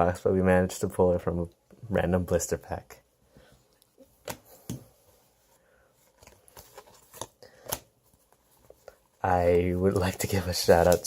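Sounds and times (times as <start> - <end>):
cards and foil wrappers crinkling: 9.6 - 11.0.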